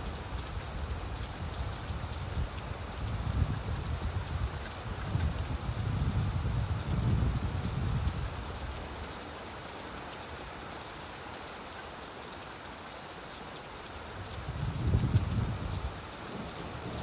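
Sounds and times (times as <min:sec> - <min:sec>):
steady rain hiss: 0:00.0 - 0:17.0
low rumble of thunder: 0:14.2 - 0:17.0.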